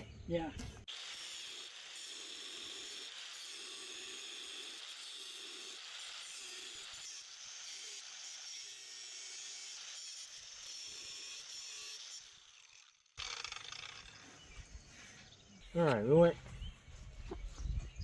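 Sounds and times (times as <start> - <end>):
angle grinder cutting steel: 0.8 - 14.4.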